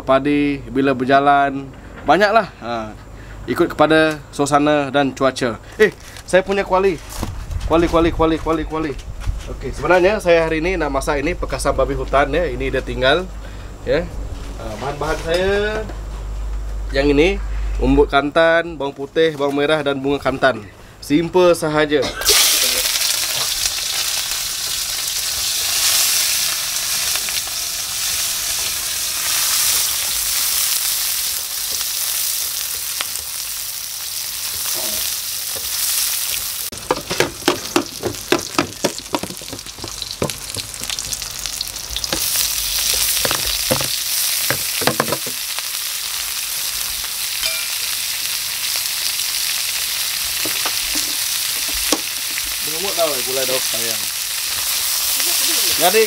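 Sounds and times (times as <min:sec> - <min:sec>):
food sizzling in a wok: 0:22.2 - 0:56.0
spatula knocking on wok: 0:36.8 - 0:41.2, 0:43.2 - 0:45.4.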